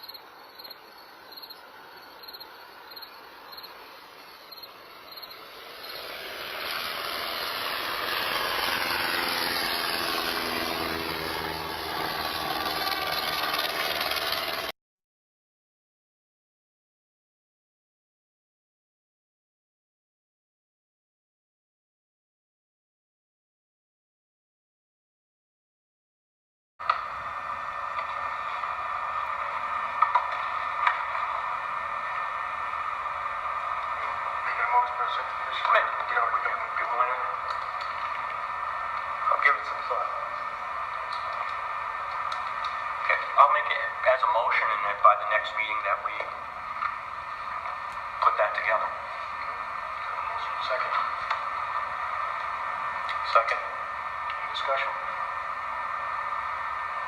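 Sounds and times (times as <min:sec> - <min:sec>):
crickets chirping: 0:00.0 - 0:08.0
vehicle engine running: 0:04.2 - 0:14.7, 0:26.8 - 0:57.0
recording static hiss: 0:26.9 - 0:57.0.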